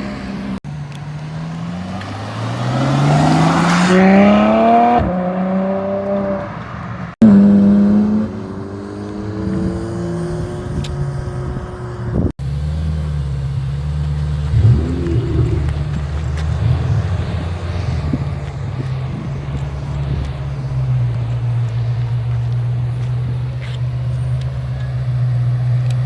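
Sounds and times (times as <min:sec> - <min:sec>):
car engines accelerating hard: 0:00.0 - 0:26.0
low engine rumble: 0:07.2 - 0:26.0.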